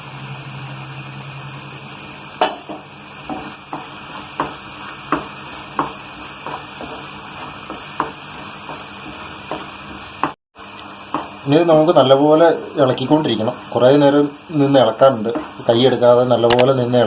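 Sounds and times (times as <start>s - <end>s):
pan sizzling: 0.0s - 17.0s
spoon knocking against pan: 2.4s - 10.4s.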